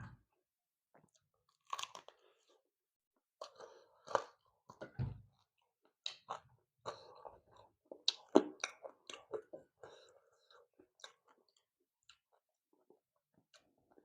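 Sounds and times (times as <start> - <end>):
food crunching: 1.6 - 2.2.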